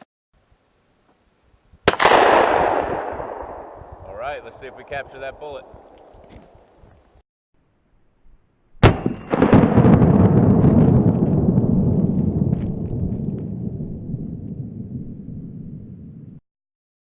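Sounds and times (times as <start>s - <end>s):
pistol shot crack: 1.9s - 3.9s, 8.8s - 10.0s
deep rumbling boom: 8.8s - 16.4s.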